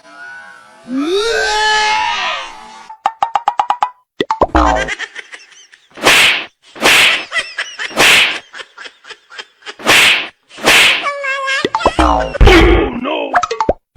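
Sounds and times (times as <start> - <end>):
cartoon swishing whooshes: 4.4 - 4.9, 6.0 - 7.3, 8.0 - 8.4, 9.8 - 12.9.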